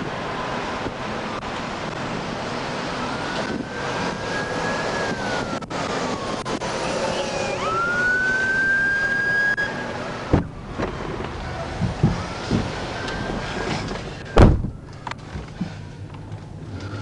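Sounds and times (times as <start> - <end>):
road and wind noise: 0.0 - 17.0
siren wailing: 2.8 - 15.4.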